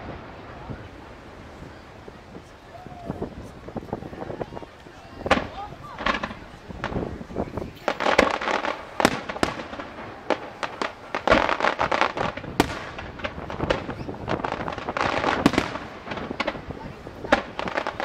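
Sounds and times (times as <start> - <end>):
fireworks crackling: 0.0 - 18.0
firework shells bursting: 7.8 - 18.0.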